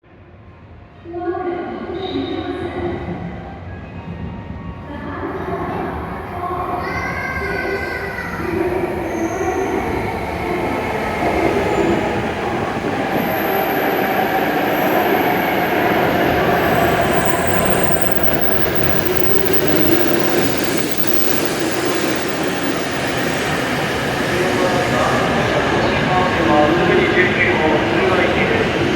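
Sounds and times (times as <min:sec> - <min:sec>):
train wheels rumbling: 0:05.5 - 0:28.9
high-pitched whine: 0:14.9 - 0:24.9.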